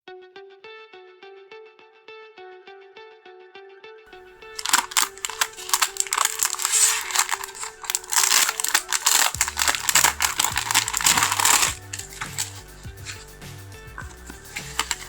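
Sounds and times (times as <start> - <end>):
background music: 2.6 - 15.0
craft material crinkling: 4.2 - 13.4, 14.0 - 15.0.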